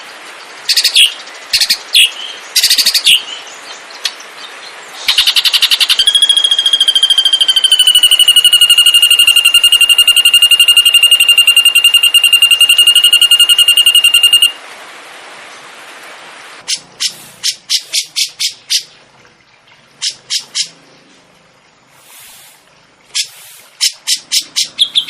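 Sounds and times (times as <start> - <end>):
songbird trilling: 5.0 - 14.6, 23.2 - 25.0.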